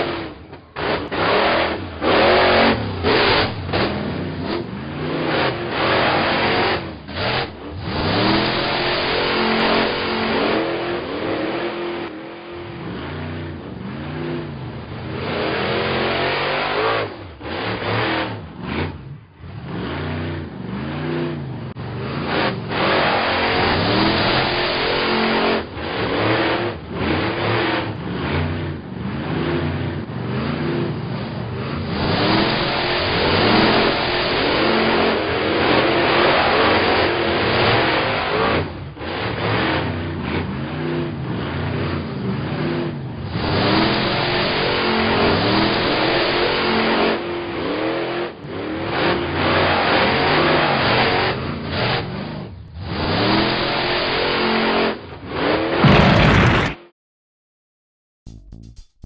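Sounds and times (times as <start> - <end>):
monster truck engines revving: 0.0 - 56.9
rough noisy rumble: 55.7 - 56.9.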